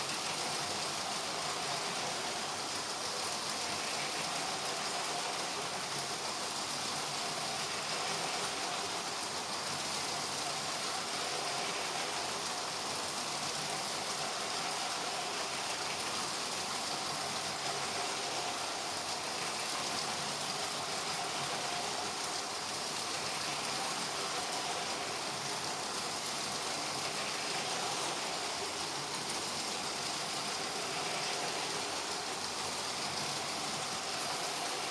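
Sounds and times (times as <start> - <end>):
toy train motors whirring: 33.4 - 34.9
toy train wheels rattling: 34.1 - 34.9.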